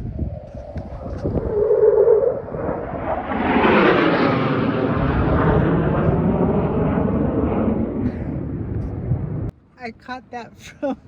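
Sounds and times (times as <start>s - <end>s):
fighter jet flying past: 0.0s - 9.5s.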